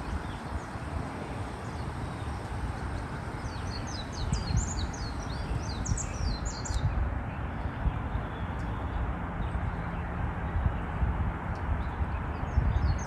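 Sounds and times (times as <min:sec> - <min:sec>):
small bird chirping: 0:00.0 - 0:09.6.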